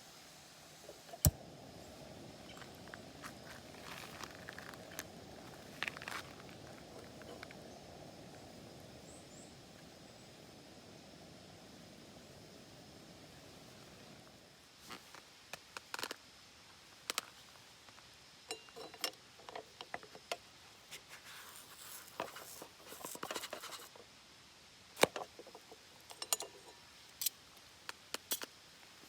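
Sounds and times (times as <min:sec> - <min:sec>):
rustling of objects handled: 0:02.5 - 0:07.6, 0:18.7 - 0:24.0.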